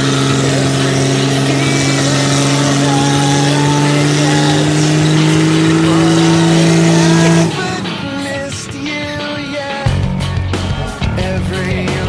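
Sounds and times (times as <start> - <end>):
car engine revving high: 0.0 - 11.1
tyres spinning: 0.0 - 11.6.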